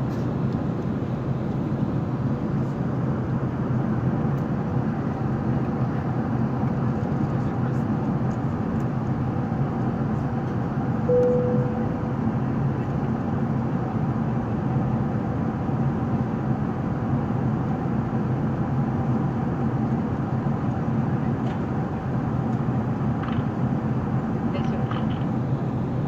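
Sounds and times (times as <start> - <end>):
airplane cabin drone: 0.0 - 26.0
brief single tone: 11.1 - 12.5.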